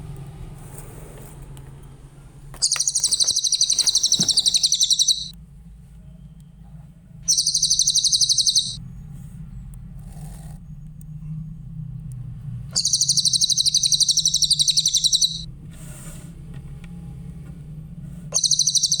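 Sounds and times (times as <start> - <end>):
steady low hum: 0.0 - 15.5
bird singing fast high trill: 2.6 - 5.3, 7.3 - 8.8, 12.8 - 15.5, 18.4 - 19.0.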